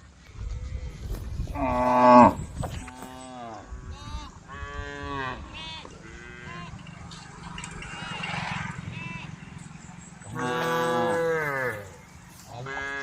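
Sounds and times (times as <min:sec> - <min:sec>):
cows mooing: 0:01.6 - 0:03.7, 0:10.3 - 0:13.0.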